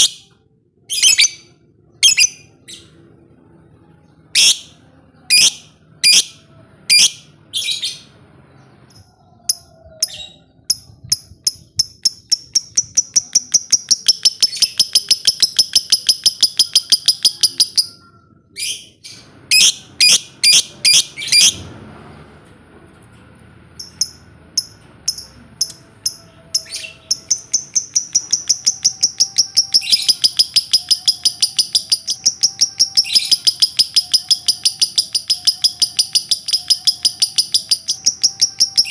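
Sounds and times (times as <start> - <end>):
lovebird shrill chirps: 0.9 - 2.8, 9.5 - 18.0, 26.1 - 38.9.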